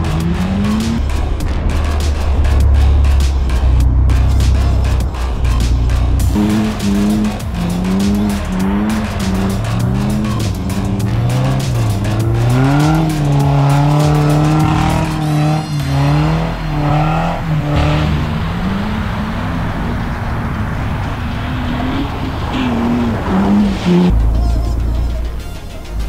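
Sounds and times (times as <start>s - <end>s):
engine revving up and down: 0.0s - 25.0s.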